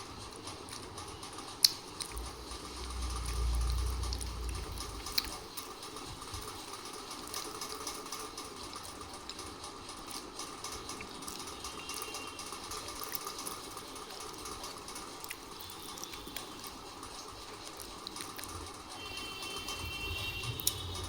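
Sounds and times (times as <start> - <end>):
close crunching and mouth sounds: 3.6 - 5.6, 17.5 - 18.7.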